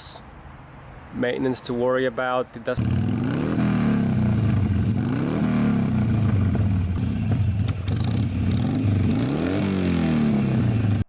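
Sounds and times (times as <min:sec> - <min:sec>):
motorcycle engine revving: 0:02.8 - 0:11.0.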